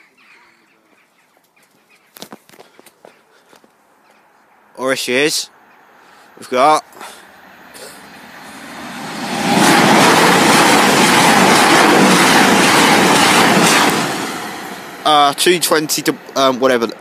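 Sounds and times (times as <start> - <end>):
train passing at speed: 7.2 - 16.9.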